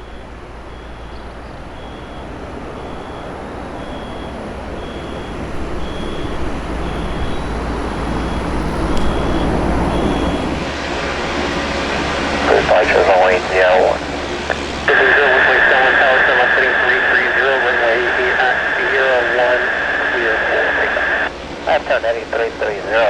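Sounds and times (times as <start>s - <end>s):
aircraft engine deep rumble: 0.0s - 23.0s.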